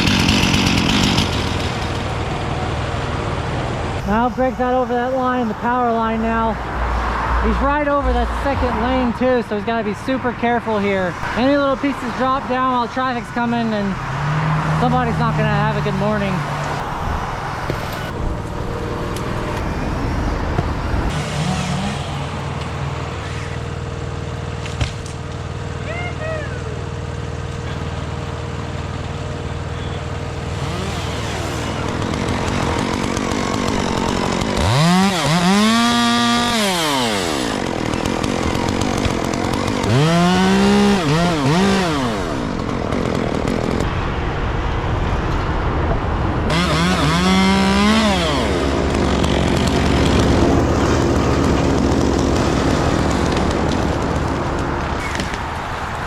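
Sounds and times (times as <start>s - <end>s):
chainsaw revving: 0.0s - 4.7s, 21.1s - 24.7s, 30.3s - 43.9s, 46.5s - 55.4s
rumble of engines and traffic: 0.0s - 56.0s.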